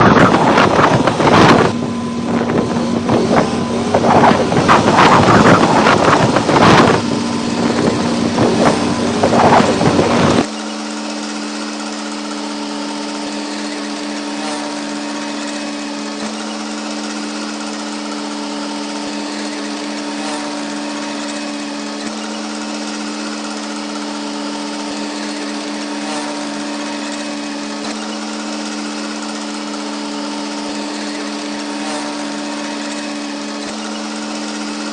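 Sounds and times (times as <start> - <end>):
gusty wind noise: 0.0 - 10.5
steady droning hum: 0.0 - 10.5
motor running: 0.0 - 34.9.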